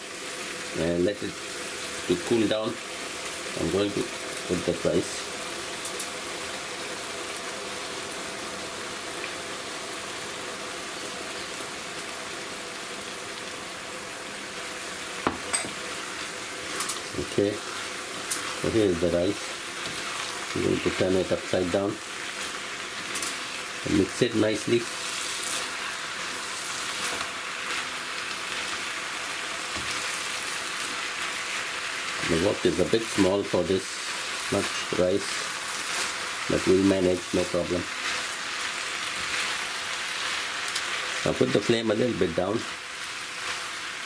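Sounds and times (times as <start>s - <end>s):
vegetables sizzling in a wok: 0.0s - 44.0s
faint scraping in a wok: 15.4s - 28.9s.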